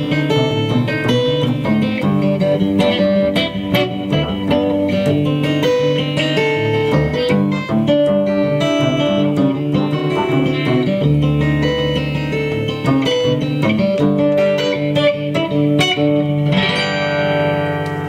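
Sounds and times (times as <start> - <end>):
picked acoustic guitar: 0.0 - 18.0
long held notes: 2.8 - 6.0.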